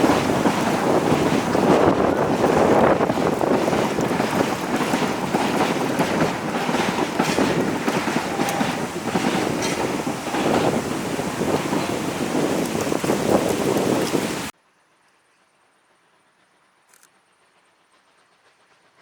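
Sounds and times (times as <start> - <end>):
clicks and rattles: 0.0 - 14.5
steam train running: 0.0 - 14.5, 15.4 - 19.0
wind buffeting microphone: 0.0 - 14.5.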